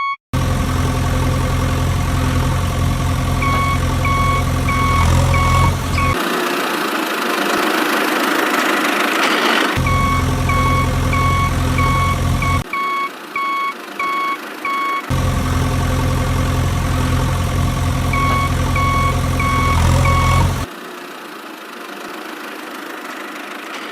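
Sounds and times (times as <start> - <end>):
reversing alarm beeping: 0.0 - 0.2, 3.4 - 6.2, 9.8 - 15.2, 18.1 - 20.6
heavy vehicle engine idling: 0.4 - 23.9.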